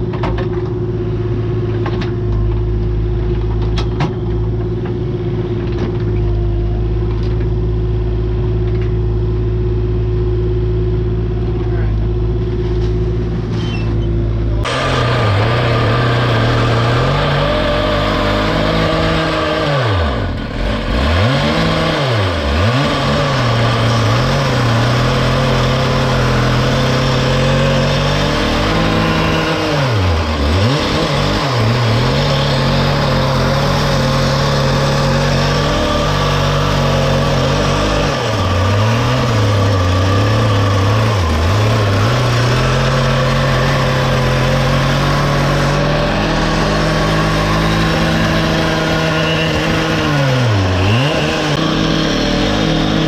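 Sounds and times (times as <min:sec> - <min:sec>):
earthmoving machine engine running: 0:00.0 - 0:53.0.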